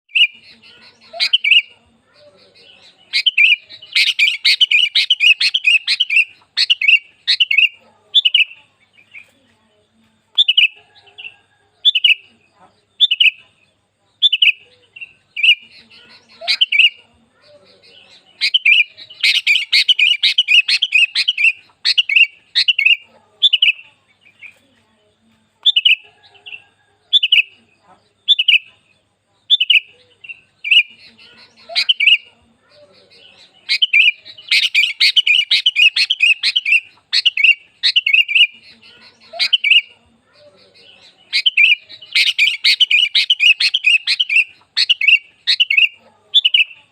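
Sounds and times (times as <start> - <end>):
bird rapid excited chattering: 0.1 - 9.2, 14.2 - 24.5, 28.2 - 28.7, 29.5 - 46.9.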